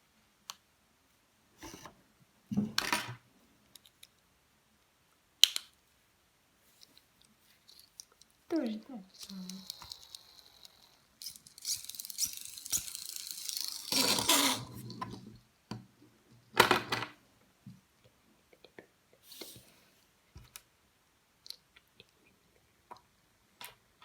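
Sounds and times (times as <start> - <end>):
small plastic parts clicking: 5.4 - 5.8, 6.8 - 8.4, 9.1 - 15.2
plastic packaging rustling and tearing: 9.1 - 15.0.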